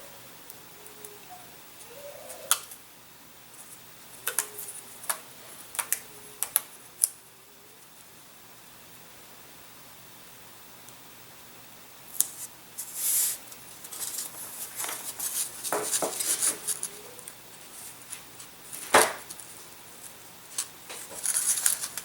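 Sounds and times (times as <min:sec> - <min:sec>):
tape tearing and rustling: 0:12.2 - 0:22.0.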